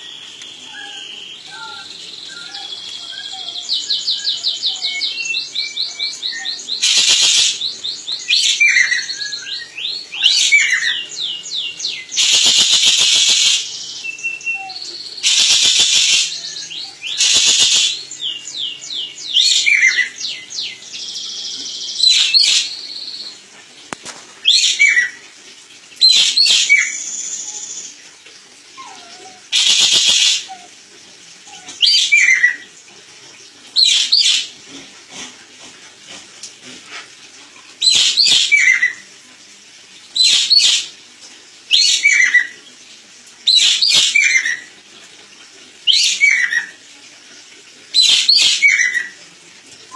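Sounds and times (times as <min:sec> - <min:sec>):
bird harsh rasping calls: 0:06.8 - 0:07.7, 0:12.1 - 0:13.8, 0:15.2 - 0:18.1, 0:29.6 - 0:30.5, 0:37.8 - 0:39.0
bird high chirps and whistles: 0:12.2 - 0:18.4, 0:21.7 - 0:22.8, 0:37.8 - 0:39.0, 0:40.2 - 0:40.9, 0:41.7 - 0:42.6, 0:43.5 - 0:44.7, 0:45.9 - 0:46.7, 0:48.0 - 0:49.1.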